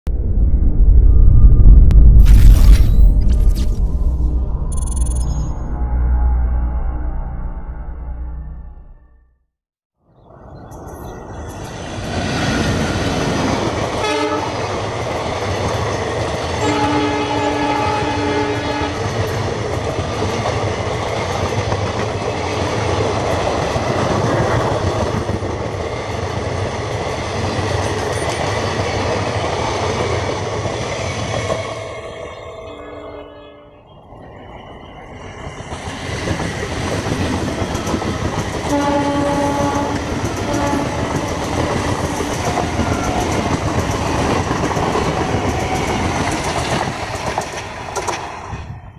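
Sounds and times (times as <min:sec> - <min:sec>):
train wheels rumbling on rails: 0:10.7 - 0:32.8, 0:34.1 - 0:48.9
locomotive horn blasts: 0:14.0 - 0:14.6, 0:16.6 - 0:19.1, 0:38.7 - 0:41.3.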